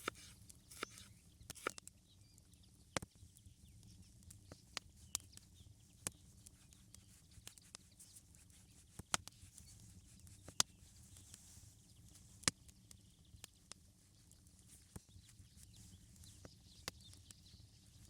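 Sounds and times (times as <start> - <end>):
sharp clicks and snaps: 0.0 - 1.8.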